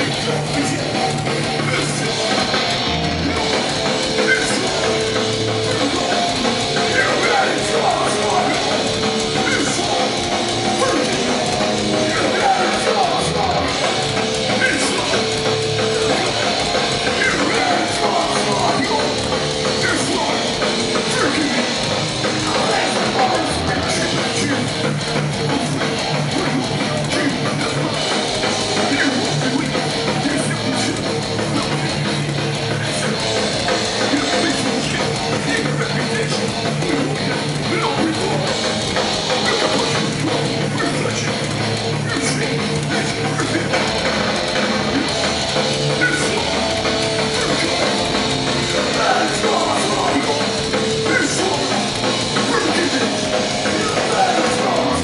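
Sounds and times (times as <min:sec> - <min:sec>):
punk band playing: 0:00.0 - 0:55.0
shouted vocals: 0:45.8 - 0:55.0.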